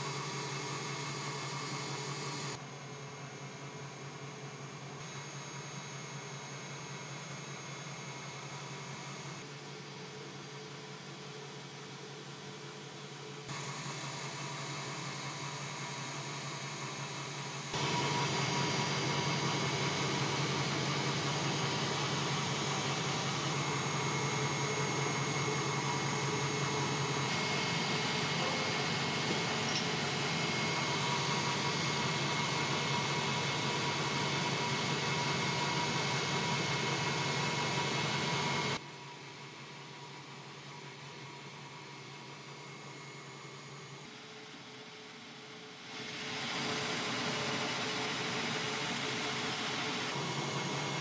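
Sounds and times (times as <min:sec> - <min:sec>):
machine motor humming and whirring: 0:00.0 - 0:09.8, 0:13.5 - 0:38.8, 0:45.5 - 0:51.0.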